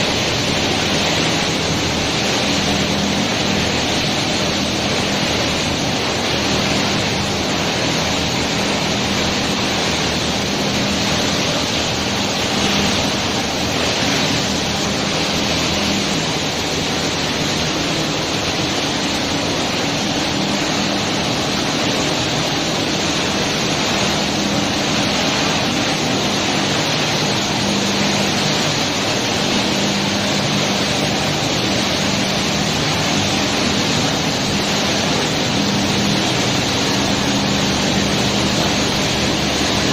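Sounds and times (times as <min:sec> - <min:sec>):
machinery and water hiss: 0:00.0 - 0:39.9.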